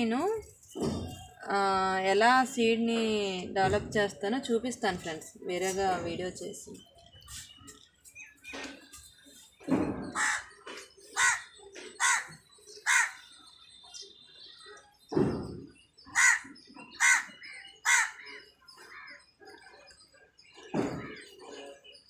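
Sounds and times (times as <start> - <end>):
bird calling: 10.0 - 15.3, 16.0 - 20.0.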